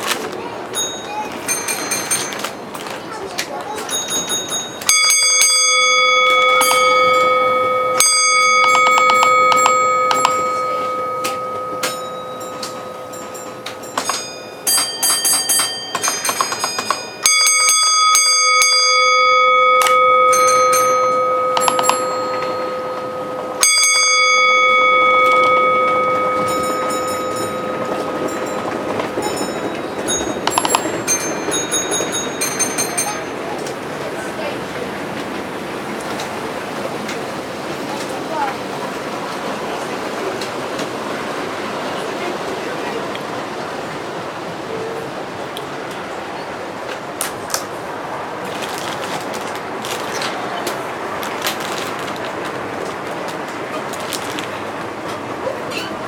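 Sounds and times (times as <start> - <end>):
bell ringing: 0.8 - 33.7
high metallic clinks: 3.8 - 33.4.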